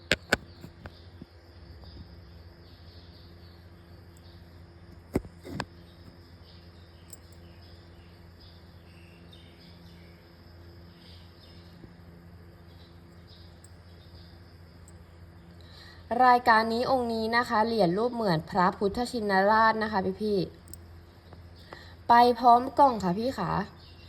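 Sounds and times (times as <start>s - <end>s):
sharp clicks: 0.0s - 0.9s
insects chirring: 0.0s - 24.0s
low electrical hum: 0.0s - 24.0s.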